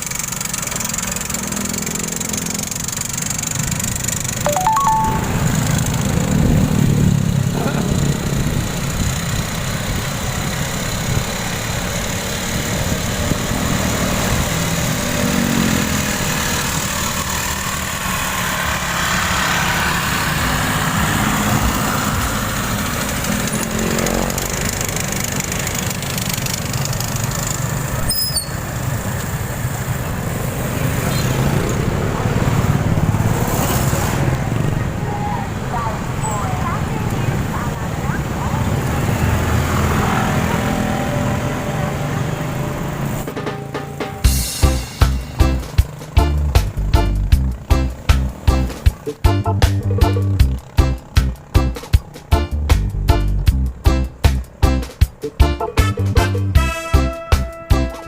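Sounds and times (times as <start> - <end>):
road traffic rumble: 0.0 - 58.0
engines accelerating: 0.1 - 44.3.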